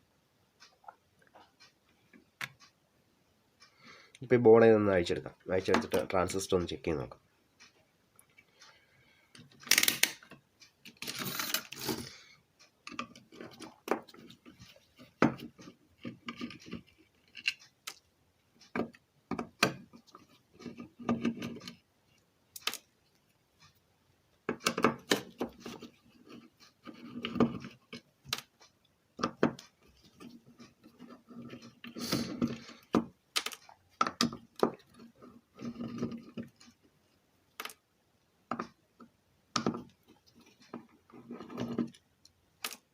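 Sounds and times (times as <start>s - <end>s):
hand tools clicking and tapping: 9.3s - 12.0s, 12.8s - 18.0s, 18.7s - 21.8s, 22.6s - 22.9s, 24.4s - 28.6s, 29.2s - 36.8s, 38.5s - 42.0s
circuit board being handled: 37.5s - 37.9s.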